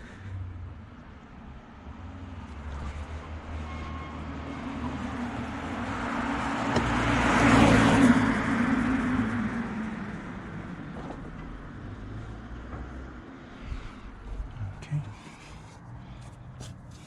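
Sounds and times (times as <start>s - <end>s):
vehicle passing by: 1.8s - 17.0s.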